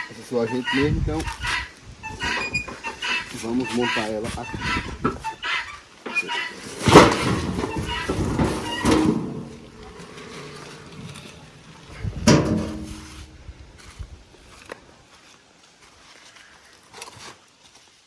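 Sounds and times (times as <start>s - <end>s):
firewood clunks: 6.1s - 11.4s, 12.0s - 13.3s.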